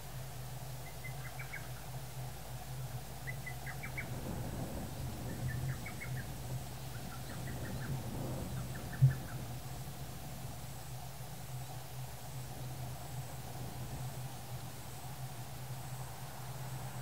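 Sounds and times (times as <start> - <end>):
steady low hum: 0.0 - 17.0
songbird singing: 0.5 - 17.0.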